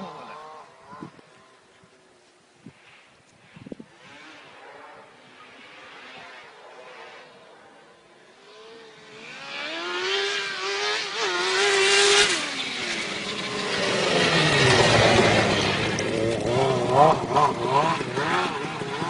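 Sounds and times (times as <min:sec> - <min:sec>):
motorcycle engine revving hard: 0:00.0 - 0:01.2, 0:08.3 - 0:19.0.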